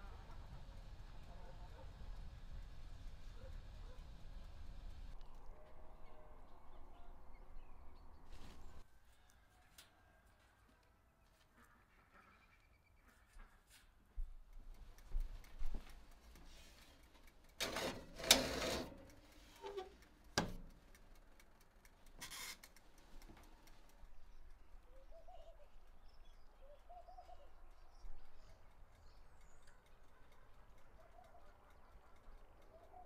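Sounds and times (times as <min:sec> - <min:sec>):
small birds chirping: 0:22.8 - 0:33.0
soft cooing bird calls: 0:24.9 - 0:25.9, 0:26.6 - 0:27.7.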